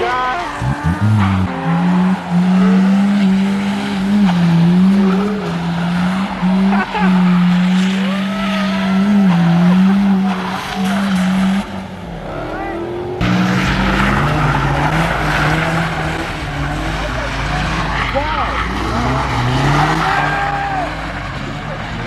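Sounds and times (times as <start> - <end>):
car engine at high revs: 0.0 - 22.0
tyres squealing and skidding: 0.0 - 22.0.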